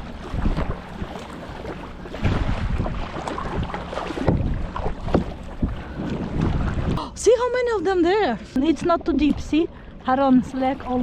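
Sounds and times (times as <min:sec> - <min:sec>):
paddle splashing in water: 0:00.0 - 0:07.0
wind buffeting microphone: 0:00.0 - 0:11.0.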